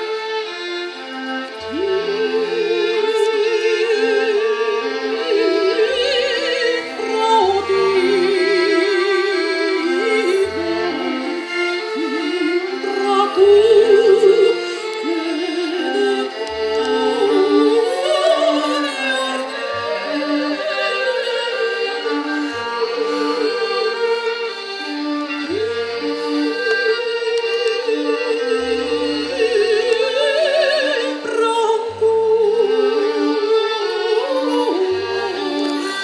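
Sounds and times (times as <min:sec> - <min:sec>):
orchestra strings and bass: 0:00.0 - 0:36.0
operatic singing: 0:01.7 - 0:24.5.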